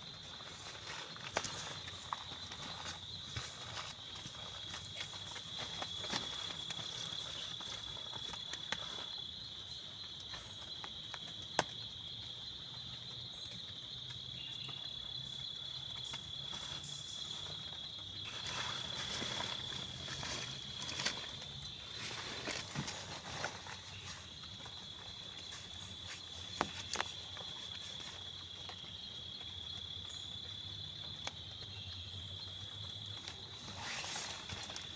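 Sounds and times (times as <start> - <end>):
rustling: 0.0 - 11.3, 15.8 - 29.0, 33.0 - 34.9
insect trill: 0.0 - 34.9.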